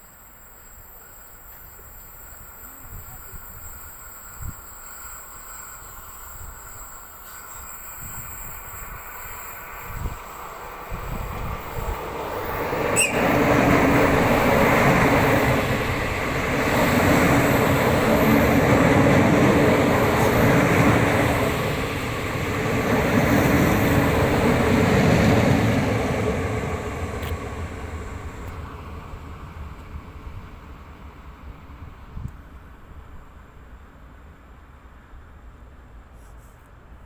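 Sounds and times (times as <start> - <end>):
train wheels on rails: 0.0 - 36.2.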